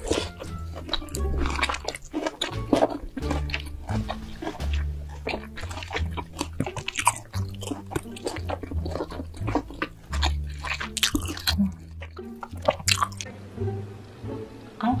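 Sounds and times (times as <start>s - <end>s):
crunchy chewing: 0.0s - 13.3s.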